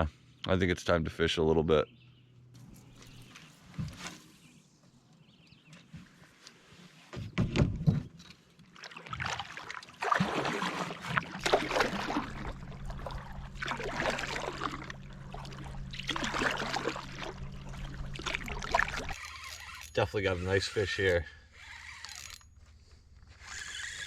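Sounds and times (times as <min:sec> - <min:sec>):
water splashing around canoe: 0:08.6 - 0:20.0
low hum: 0:11.2 - 0:24.0.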